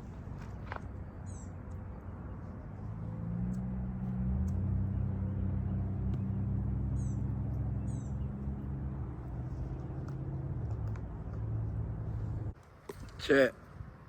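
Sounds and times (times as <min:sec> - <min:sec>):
low hum: 0:00.9 - 0:12.6
bird chirps: 0:01.2 - 0:01.6, 0:04.4 - 0:08.8.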